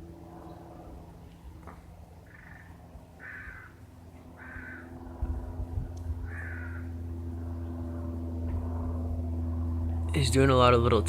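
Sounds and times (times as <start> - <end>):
light aircraft engine drone: 0.0 - 11.0
crow cawing: 2.2 - 3.8, 4.4 - 5.0, 6.2 - 7.0.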